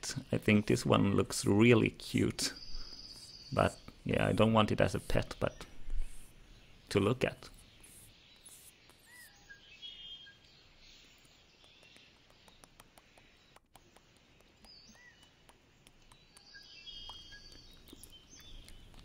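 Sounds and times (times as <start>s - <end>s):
distant bird chirps: 0.0s - 19.0s
small clicks: 11.1s - 19.0s.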